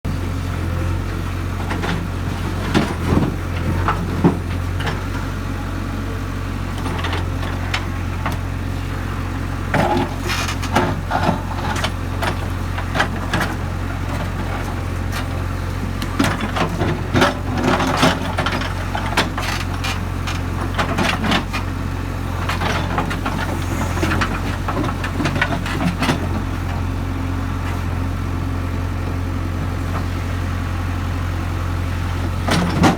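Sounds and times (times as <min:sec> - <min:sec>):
diesel engine running: 0:00.0 - 0:32.9
rocks clanking and rattling: 0:01.6 - 0:05.4, 0:06.7 - 0:08.5, 0:09.6 - 0:27.0, 0:32.1 - 0:32.9.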